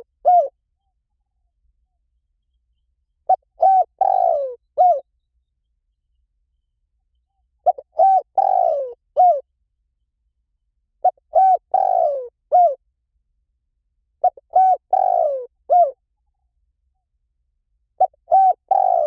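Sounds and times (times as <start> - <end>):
dove cooing: 0.0 - 0.6, 3.3 - 5.1, 7.6 - 9.5, 11.0 - 12.8, 14.2 - 16.0, 18.0 - 19.0.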